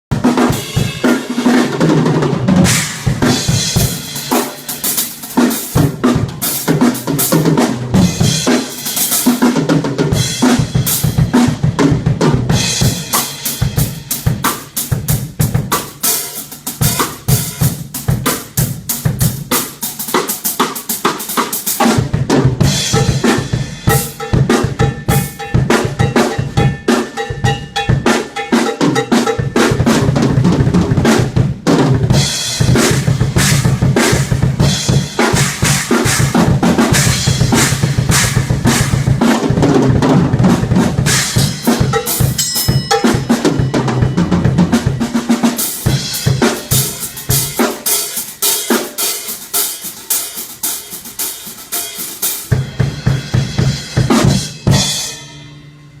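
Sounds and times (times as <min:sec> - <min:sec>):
live band playing: 0:00.1 - 0:55.3
bass drum and snare hits: 0:02.3 - 0:16.0, 0:21.8 - 0:28.2, 0:28.9 - 0:45.2.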